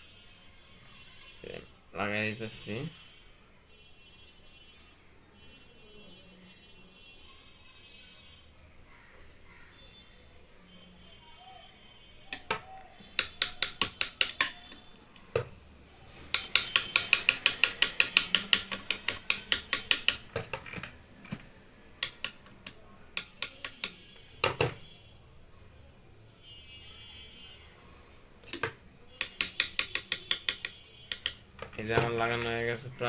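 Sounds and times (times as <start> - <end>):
sewing machine ratchet clicks: 16.3 - 20.9.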